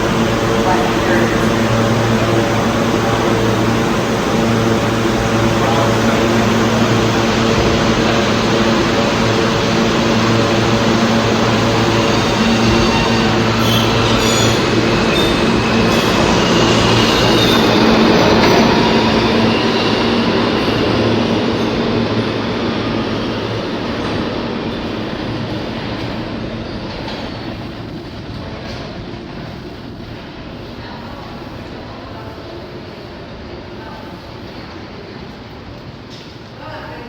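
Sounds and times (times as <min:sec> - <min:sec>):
rail noise: 0:00.0 - 0:37.0
subway train motor hum: 0:00.0 - 0:37.0
high wheel squeal: 0:09.6 - 0:22.5.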